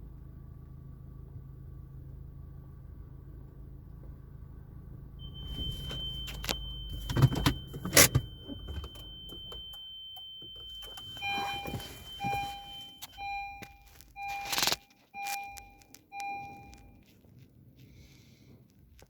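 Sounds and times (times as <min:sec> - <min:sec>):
electronic beep: 0:05.2 - 0:17.1
high electronic tone: 0:05.3 - 0:17.0.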